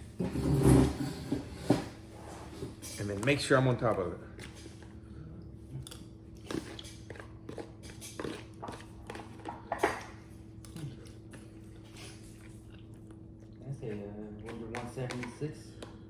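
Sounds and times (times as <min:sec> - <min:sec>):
steady low hum: 0:00.0 - 0:16.0
person chewing: 0:04.3 - 0:14.6.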